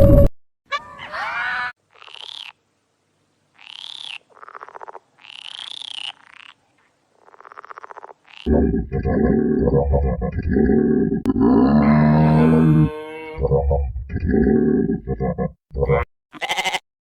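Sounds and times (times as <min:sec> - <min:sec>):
frogs rattling croaks: 0:01.9 - 0:02.6, 0:03.6 - 0:12.0
frog gliding call: 0:03.6 - 0:16.0.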